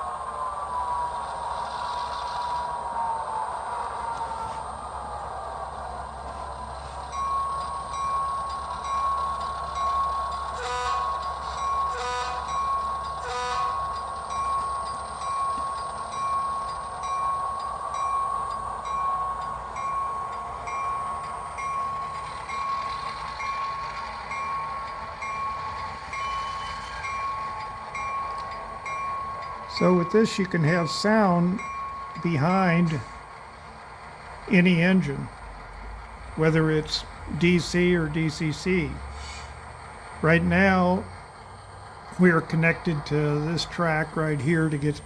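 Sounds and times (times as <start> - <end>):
steady high whine: 0.0 - 45.0
simulated diesel engine idling: 34.4 - 45.0.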